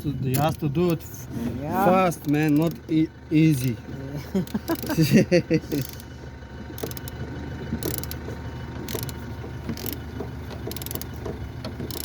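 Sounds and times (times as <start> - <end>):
ratchet wrench clicking: 5.8 - 6.1, 6.8 - 7.2, 7.8 - 8.2, 8.9 - 9.2, 9.8 - 10.0, 10.7 - 11.1.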